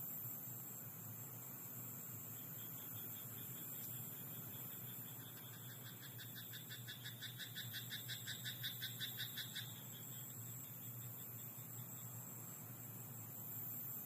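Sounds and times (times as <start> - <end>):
frog croaking: 2.6 - 10.2.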